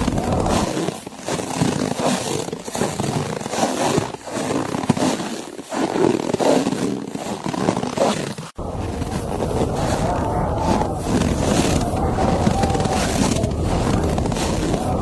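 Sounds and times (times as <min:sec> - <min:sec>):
footsteps crunching through snow: 0:03.7 - 0:15.0.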